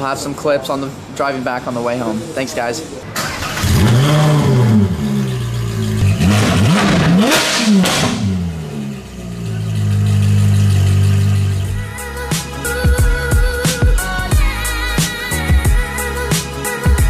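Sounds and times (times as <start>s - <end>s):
sports car engine revving: 3.2s - 11.8s
music: 11.0s - 17.0s.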